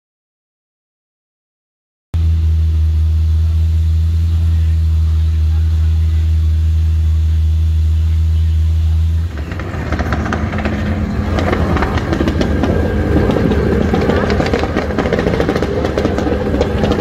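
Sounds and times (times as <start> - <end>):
car engine idling: 2.2 - 17.0
engines revving: 2.2 - 17.0
exhaust crackle and pops: 9.2 - 17.0.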